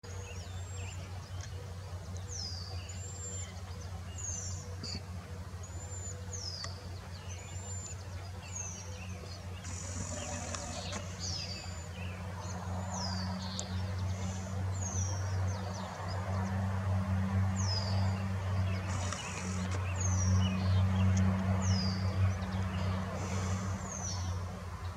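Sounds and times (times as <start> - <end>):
steady low hum: 0.0 - 24.9
bird calling: 2.9 - 12.0.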